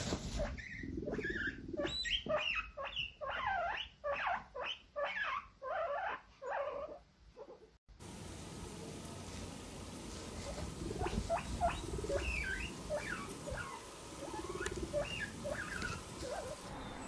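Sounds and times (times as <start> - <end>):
rodent squeaking: 0.4 - 7.6, 11.0 - 17.0.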